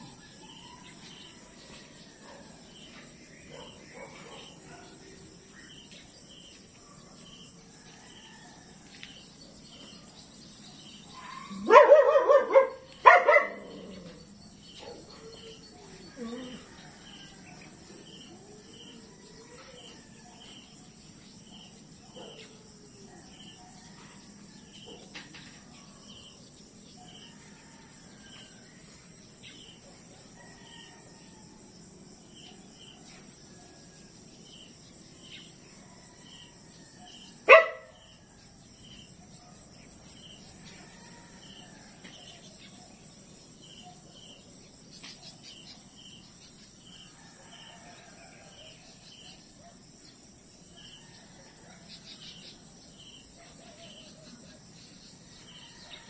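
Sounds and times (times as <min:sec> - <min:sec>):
crickets chirping: 0:00.0 - 0:56.0
high insect drone: 0:00.0 - 0:56.0.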